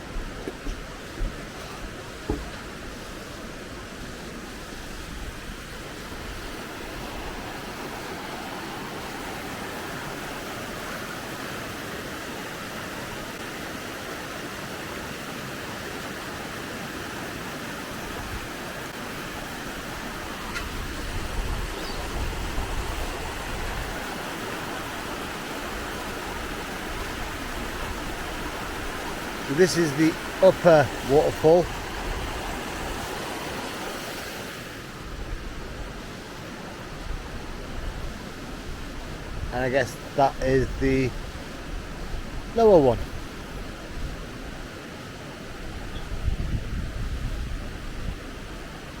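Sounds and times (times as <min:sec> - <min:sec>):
waterfall rushing: 0:05.6 - 0:35.0, 0:39.5 - 0:41.6.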